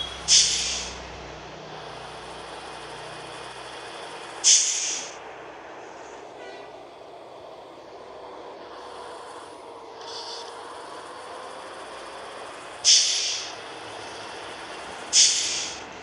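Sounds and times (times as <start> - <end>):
air brakes hissing: 0.0 - 16.0
vehicle rumble: 0.0 - 16.0.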